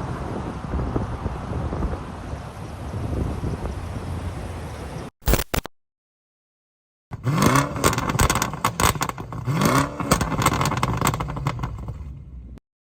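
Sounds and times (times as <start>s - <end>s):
engine revving with crackly exhaust: 7.1s - 12.6s.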